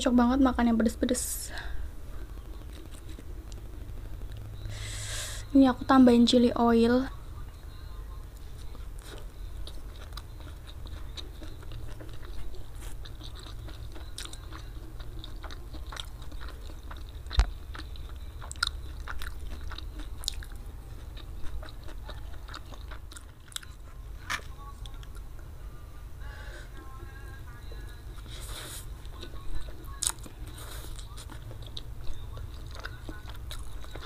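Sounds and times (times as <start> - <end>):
low steady hum: 0.0 - 34.0
chewing noodles: 8.4 - 25.2, 28.2 - 34.0.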